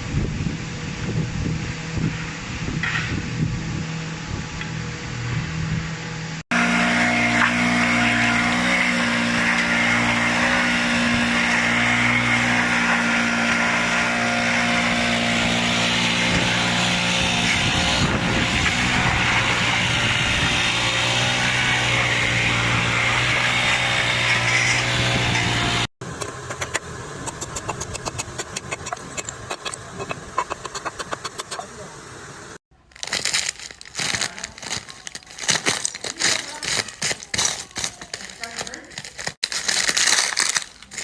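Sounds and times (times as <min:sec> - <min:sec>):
machine humming: 0:24.9 - 0:32.6.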